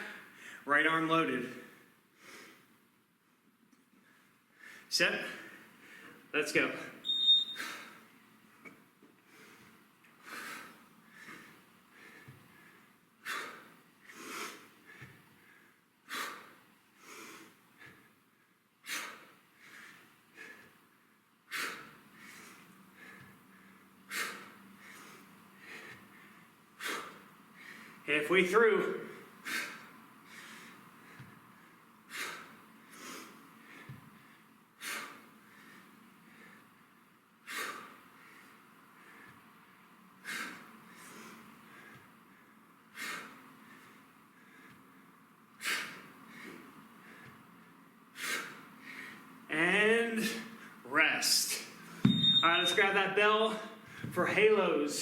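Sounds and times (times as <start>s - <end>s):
man breathing hard: 0.0s - 0.7s, 1.6s - 2.8s, 4.0s - 6.3s, 7.6s - 8.2s, 9.2s - 28.1s, 29.0s - 49.5s, 53.7s - 54.2s
faint low thumps: 52.0s - 52.5s.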